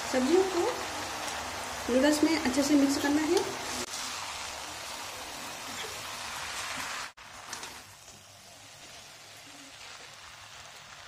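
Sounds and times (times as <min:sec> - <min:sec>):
noodles sizzling in a pan: 0:00.0 - 0:11.0.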